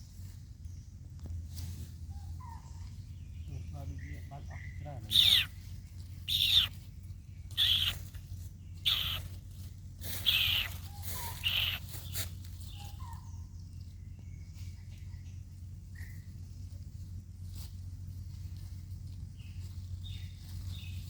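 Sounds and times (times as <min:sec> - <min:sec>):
low hum: 0:00.0 - 0:21.0
faint chirps: 0:03.3 - 0:09.4, 0:10.0 - 0:16.3
baby monkey crying out: 0:05.1 - 0:05.6, 0:06.3 - 0:06.8, 0:07.6 - 0:08.1, 0:08.8 - 0:09.3, 0:10.1 - 0:12.2.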